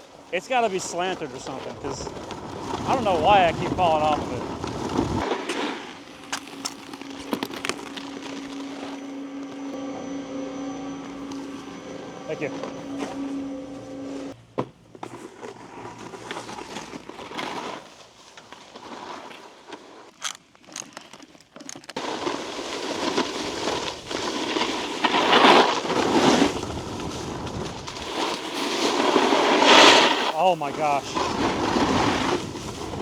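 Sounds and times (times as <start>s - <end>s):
snowboard scraping icy snow: 0.0s - 14.3s, 15.1s - 20.1s, 22.0s - 33.0s.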